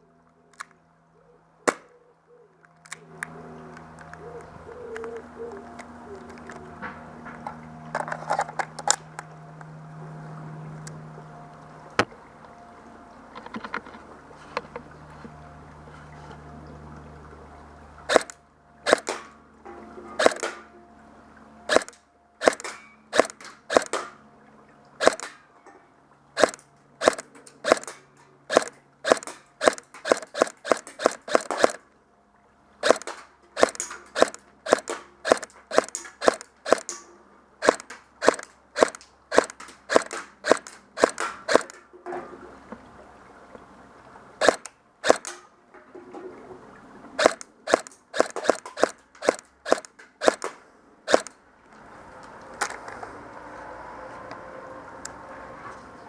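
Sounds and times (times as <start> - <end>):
airsoft gun firing: 18.1 - 18.3, 18.9 - 19.3, 20.2 - 20.6, 21.7 - 24.1, 25.0 - 25.3, 26.4 - 31.8, 32.8 - 37.0, 37.6 - 41.7, 44.4 - 45.4, 47.2 - 51.3.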